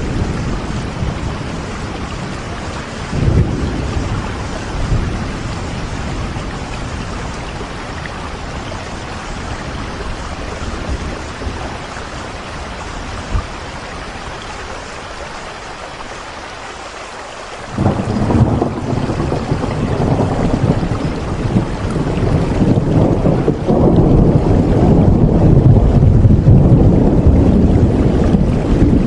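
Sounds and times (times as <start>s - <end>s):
low rumble of thunder: 0.0s - 14.5s, 17.6s - 29.0s
steady rain: 0.0s - 29.0s
thunder peal: 3.1s - 7.4s, 17.7s - 29.0s.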